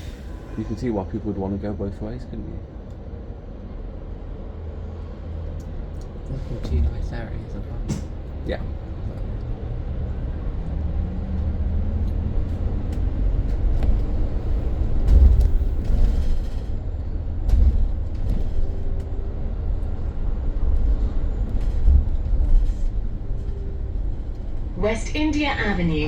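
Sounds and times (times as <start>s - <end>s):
road and tyre rumble: 0.0s - 26.0s
bus body clunks and rattles: 5.4s - 26.0s.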